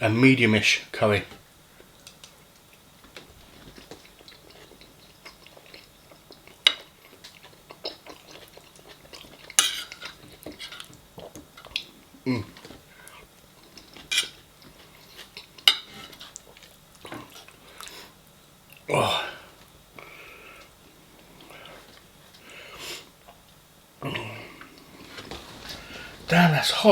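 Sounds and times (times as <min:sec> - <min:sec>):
cutlery clinking and scraping plate: 0:09.4 - 0:10.9, 0:13.9 - 0:14.4.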